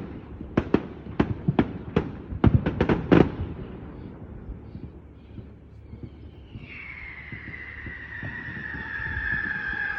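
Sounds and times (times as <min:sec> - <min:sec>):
fireworks rumble: 0:00.0 - 0:09.9
high falling whistle: 0:06.4 - 0:09.9.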